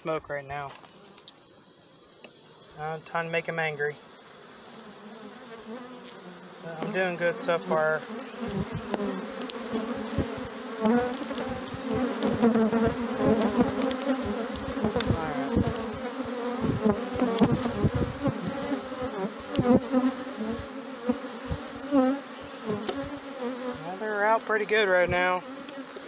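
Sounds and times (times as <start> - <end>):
bees buzzing: 0.6 - 26.0
low thumps: 13.8 - 15.9.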